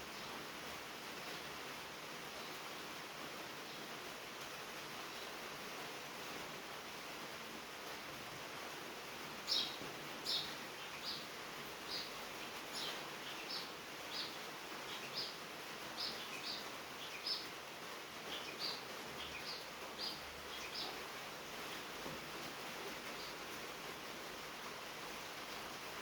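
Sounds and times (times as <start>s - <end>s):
rain pattering on a tin roof: 0.0s - 26.0s
bird chirping: 9.5s - 11.3s, 11.9s - 15.4s, 16.0s - 17.5s, 18.3s - 21.0s.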